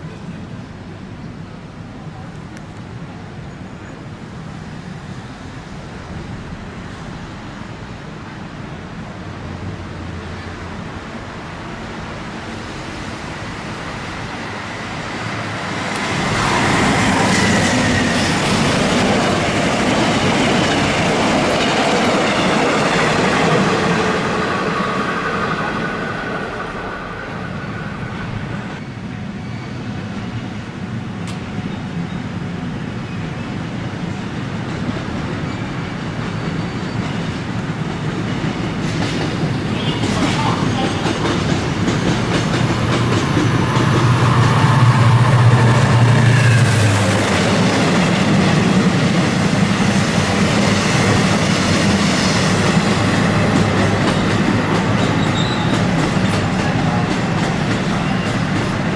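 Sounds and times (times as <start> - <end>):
train wheels clattering on rails: 13.8 - 27.0, 34.4 - 58.9.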